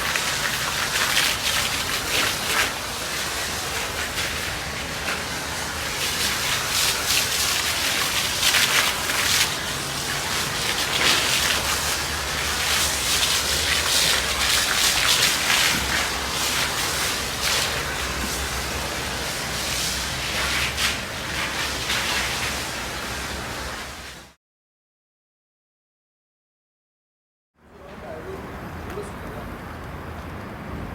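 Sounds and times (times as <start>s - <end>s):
water spraying onto a vehicle: 0.0s - 24.4s.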